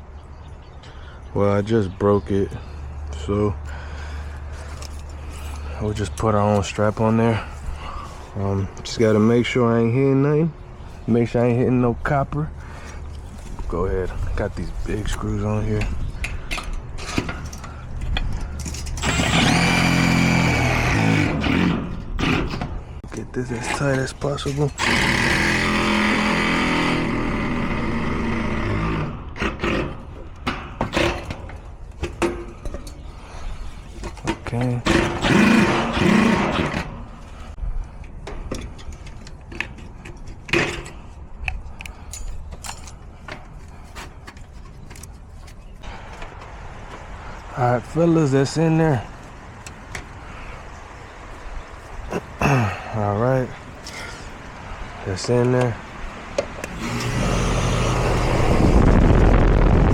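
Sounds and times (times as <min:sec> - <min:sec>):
power drill whining: 0:18.9 - 0:22.4, 0:24.7 - 0:29.1, 0:56.6 - 0:58.9.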